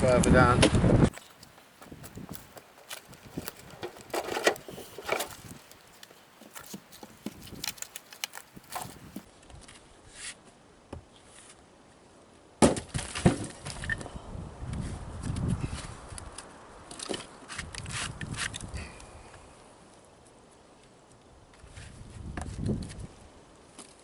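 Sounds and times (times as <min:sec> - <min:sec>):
wood striking wood: 0:01.1 - 0:09.2
firewood being handled: 0:01.1 - 0:09.3.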